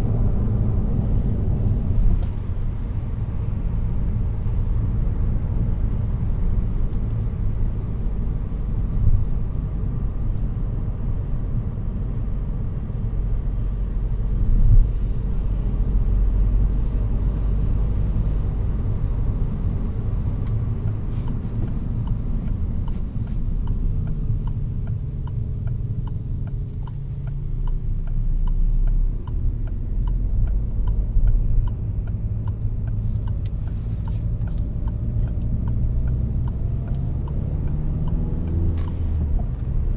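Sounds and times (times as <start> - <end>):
car engine rumble: 0.0 - 39.9
road noise: 0.0 - 39.9
regular ticking: 20.8 - 39.0.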